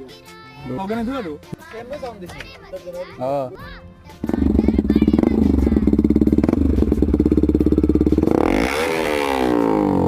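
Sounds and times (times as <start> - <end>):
motorcycle engine idling and revving: 4.2 - 10.0.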